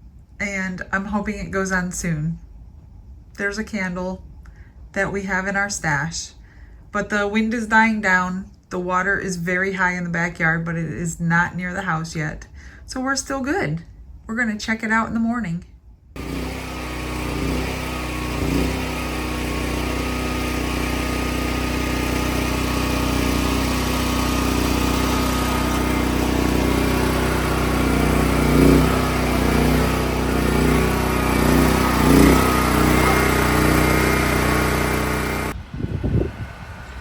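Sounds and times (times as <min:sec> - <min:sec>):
small engine humming: 0:16.2 - 0:37.0.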